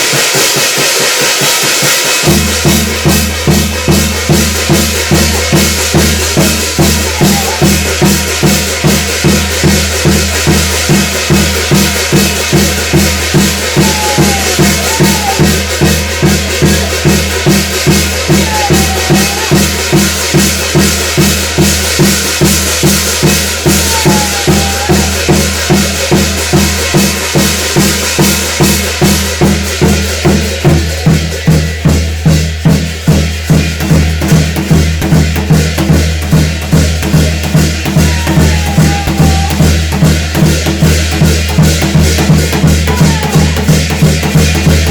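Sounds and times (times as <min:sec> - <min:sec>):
drums and cymbals fast beat: 0:00.0 - 0:44.9.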